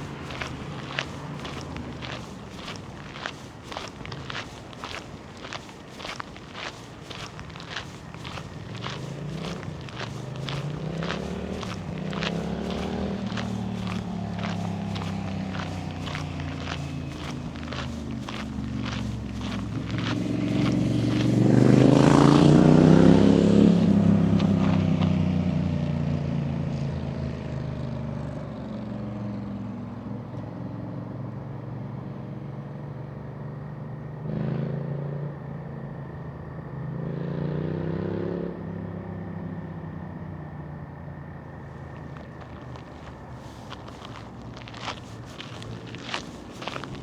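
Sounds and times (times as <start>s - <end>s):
motor vehicle passing close by: 0.0s - 29.8s, 41.7s - 47.0s.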